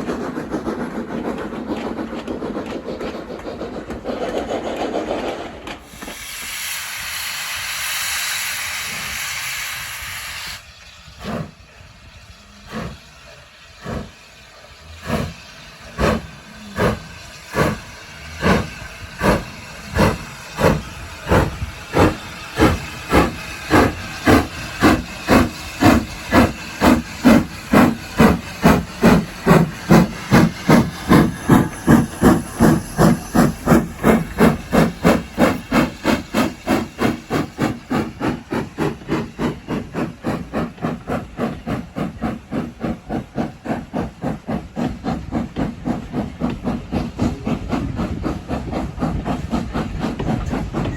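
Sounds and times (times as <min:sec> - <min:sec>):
steam hissing: 0:00.0 - 0:50.9
steam locomotive exhaust beats: 0:00.0 - 0:50.9.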